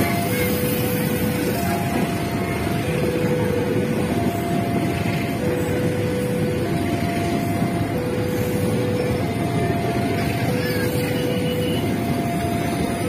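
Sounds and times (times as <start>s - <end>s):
train wheels rumbling on rails: 0.0s - 13.0s
two-tone crossing alarm: 0.0s - 13.0s.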